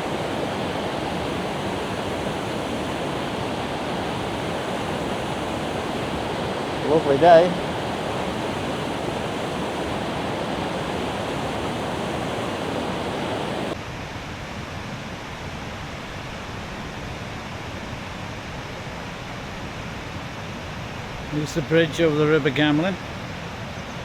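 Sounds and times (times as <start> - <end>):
river water rushing over cascades: 0.0 - 13.8.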